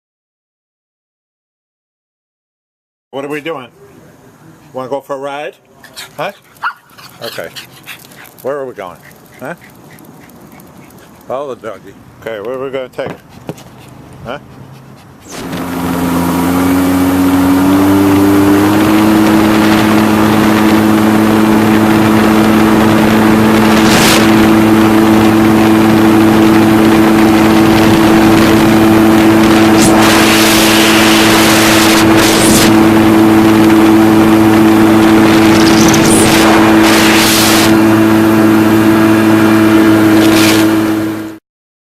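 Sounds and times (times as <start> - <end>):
jet ski engine: 13.3 - 41.4
hissing bursts: 15.2 - 16.7, 29.4 - 33.0, 35.0 - 37.8.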